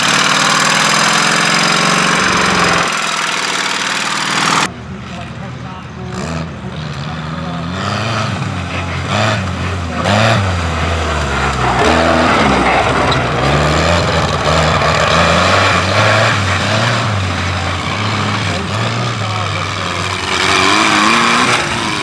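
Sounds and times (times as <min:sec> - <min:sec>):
tractor engine revving: 0:00.0 - 0:22.0
loud rushing noise: 0:08.2 - 0:22.0.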